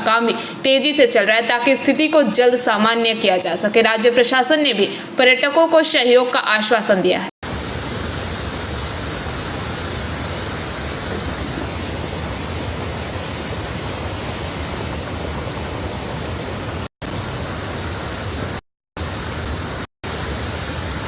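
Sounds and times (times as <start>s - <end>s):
water rushing: 7.4s - 21.0s.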